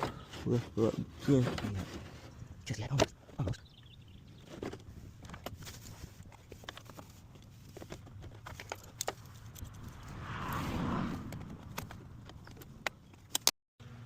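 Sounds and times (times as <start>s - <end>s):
hose rubbing and scraping: 0.0s - 2.5s.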